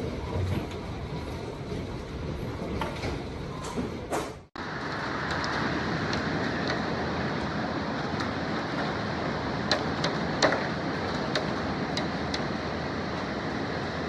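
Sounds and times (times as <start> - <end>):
hail and rain rushing: 4.6 - 14.0.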